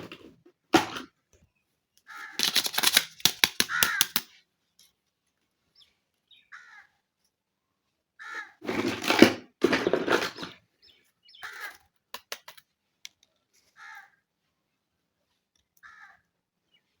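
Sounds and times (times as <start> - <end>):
plastic toy parts clattering: 2.4 - 4.3, 8.6 - 10.6, 11.5 - 13.3.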